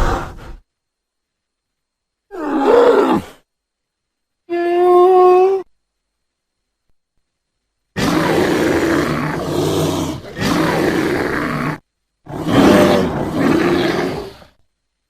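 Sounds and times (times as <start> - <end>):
bear roaring and growling: 2.3 - 3.4, 8.0 - 14.6.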